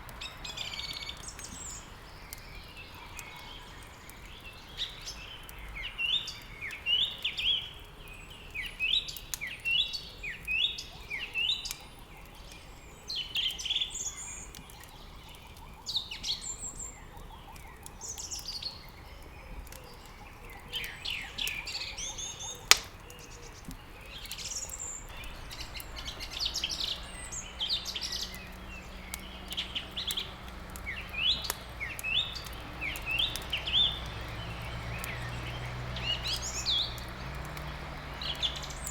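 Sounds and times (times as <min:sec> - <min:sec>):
songbirds chirping: 0:00.0 - 0:38.9
sharp crack: 0:22.4 - 0:38.9.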